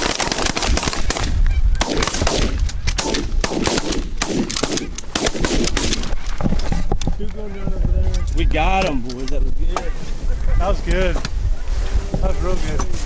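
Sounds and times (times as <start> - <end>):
shotgun fire: 0.0 - 6.1.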